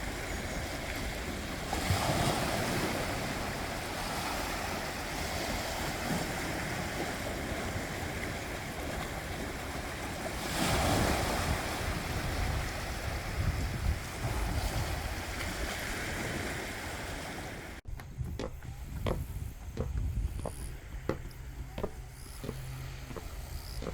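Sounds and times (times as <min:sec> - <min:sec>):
sea surf on beach: 0:00.0 - 0:17.9
wind buffeting microphone: 0:00.0 - 0:23.9.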